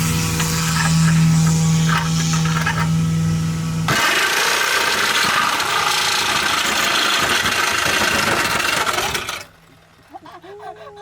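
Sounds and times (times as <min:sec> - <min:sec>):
power tool grinding metal: 0:00.0 - 0:03.0, 0:03.9 - 0:09.5.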